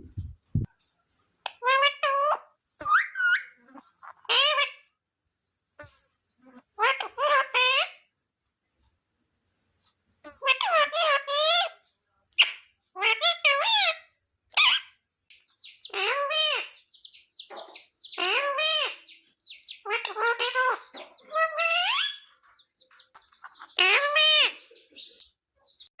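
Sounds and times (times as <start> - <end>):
parrot chirping: 0.0 - 4.9, 6.4 - 8.2, 10.2 - 26.0
parrot calling: 1.4 - 4.9, 6.4 - 8.0, 10.2 - 11.8, 12.4 - 15.0, 15.7 - 22.4, 23.1 - 25.9.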